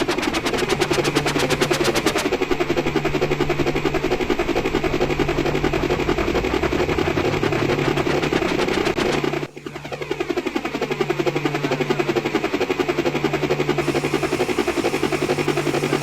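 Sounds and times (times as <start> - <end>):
helicopter rotor chopping: 13.8 - 16.0.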